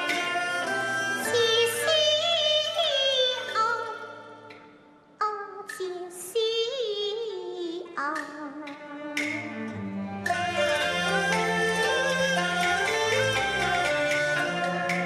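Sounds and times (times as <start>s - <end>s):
opera singing: 0.0s - 4.2s, 10.3s - 14.9s
instrumental accompaniment: 0.0s - 5.9s, 7.9s - 15.0s.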